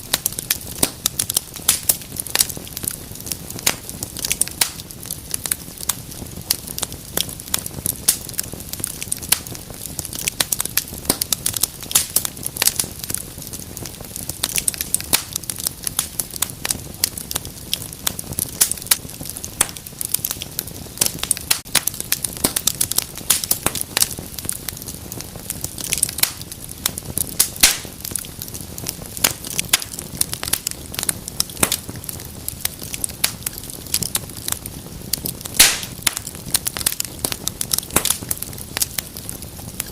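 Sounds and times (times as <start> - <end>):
rushing of flames: 0.0 - 39.9
wood fire crackling and popping: 0.0 - 39.9.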